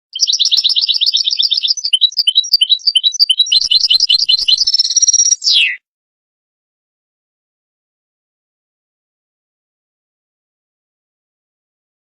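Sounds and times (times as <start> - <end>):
goldfinch singing: 0.1 - 5.8.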